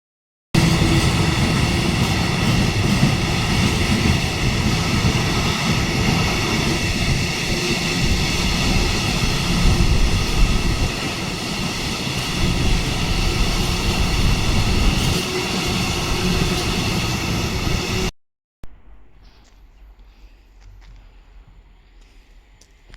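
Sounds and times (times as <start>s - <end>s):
train wheels rumbling on track: 0.6s - 18.1s.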